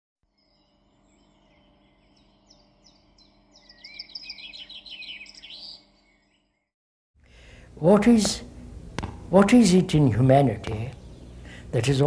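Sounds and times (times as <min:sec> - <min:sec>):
songbird chirping and warbling: 0:00.2 - 0:06.8, 0:10.0 - 0:12.0
faint steady hum: 0:00.3 - 0:06.3, 0:07.2 - 0:12.0.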